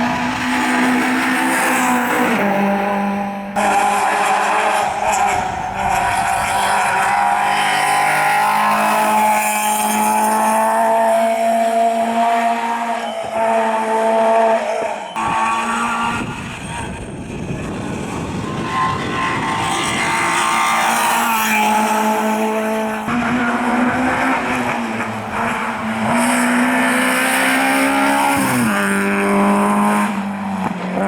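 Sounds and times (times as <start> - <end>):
car engine at high revs: 0.0 - 31.0.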